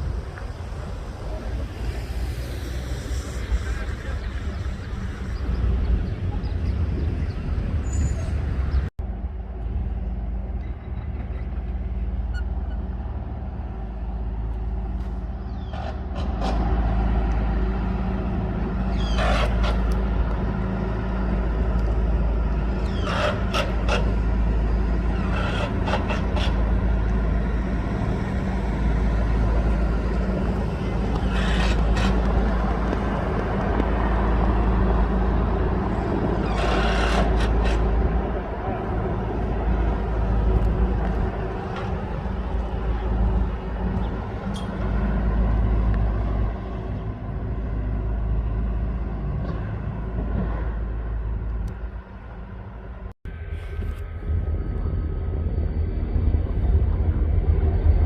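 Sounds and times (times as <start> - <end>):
freight train rumbling: 0.0 - 58.0
high train wheel squeals: 7.8 - 8.5, 22.8 - 27.0, 30.8 - 32.6, 35.9 - 38.1.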